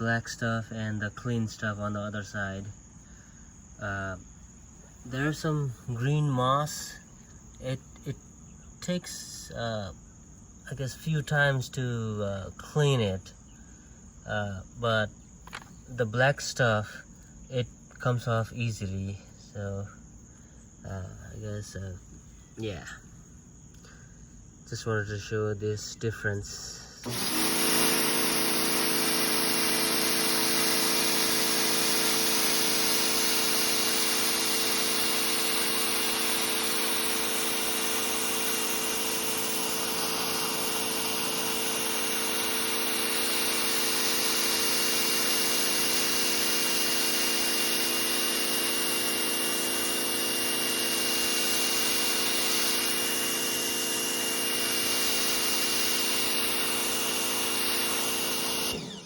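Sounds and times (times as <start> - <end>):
electric pressure washer running: 27.0 - 59.0.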